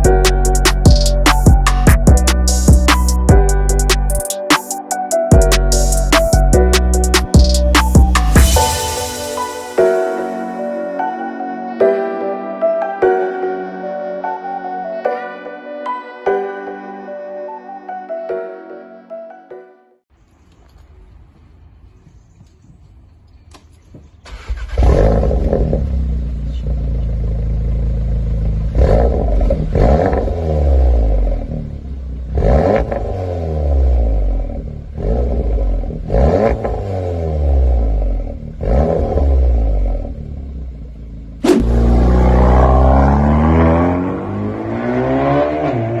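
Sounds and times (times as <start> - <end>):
exhaust crack: 41.4 - 43.9
car engine revving: 41.4 - 46.0.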